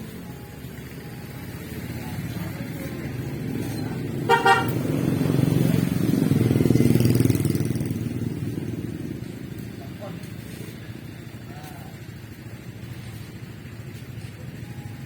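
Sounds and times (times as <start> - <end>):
small motorcycle engine running: 0.0 - 15.0
horn toots: 4.2 - 5.0.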